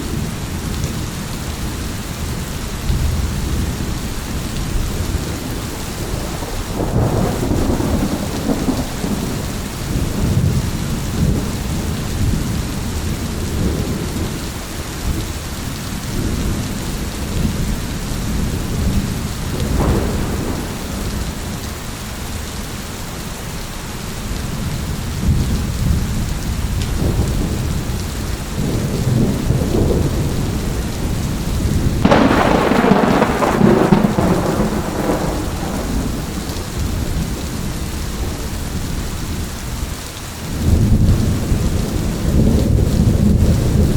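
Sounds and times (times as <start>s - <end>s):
steady rain: 0.0s - 43.9s
rolling thunder: 2.9s - 14.4s, 16.1s - 21.8s, 24.5s - 39.4s, 40.5s - 43.9s
sharp thunderclap: 6.0s - 10.6s, 19.6s - 21.6s, 28.6s - 37.6s.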